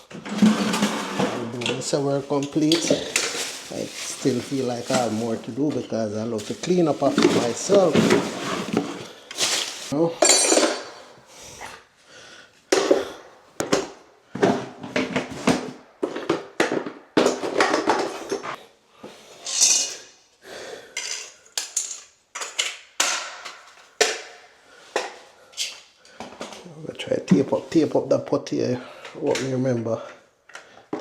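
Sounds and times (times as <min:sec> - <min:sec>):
tools clattering: 0:00.0 - 0:03.7, 0:09.4 - 0:11.0, 0:21.0 - 0:24.4
rustling: 0:00.6 - 0:10.0.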